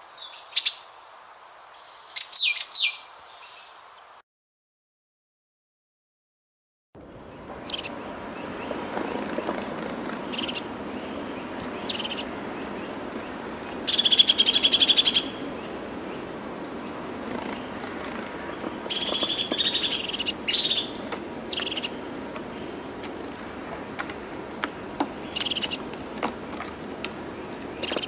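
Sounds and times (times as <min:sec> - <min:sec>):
small birds chirping: 0:00.0 - 0:00.9, 0:01.6 - 0:04.2, 0:07.0 - 0:28.0
steady background hiss: 0:00.0 - 0:04.2, 0:07.1 - 0:28.0
rapid high bird trills: 0:07.0 - 0:28.0.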